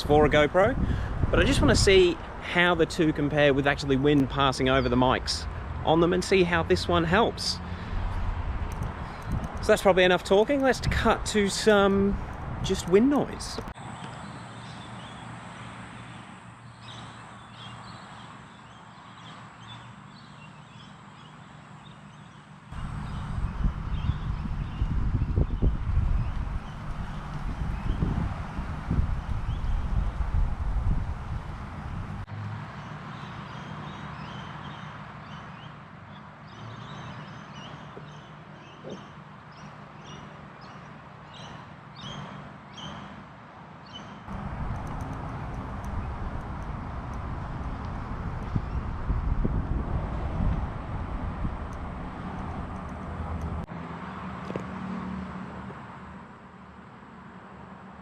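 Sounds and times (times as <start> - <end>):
wind buffeting microphone: 0.0 - 3.8, 7.1 - 13.8, 22.8 - 32.3, 44.3 - 53.7
birds chirping: 0.0 - 43.1, 43.9 - 49.4
low traffic hum: 0.0 - 58.0
wind through trees: 0.0 - 58.0.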